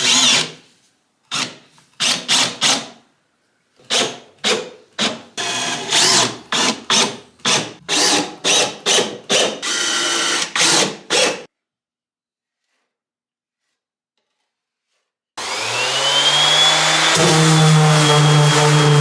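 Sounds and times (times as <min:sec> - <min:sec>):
power drill whirring: 0:05.4 - 0:11.5, 0:15.4 - 0:19.0.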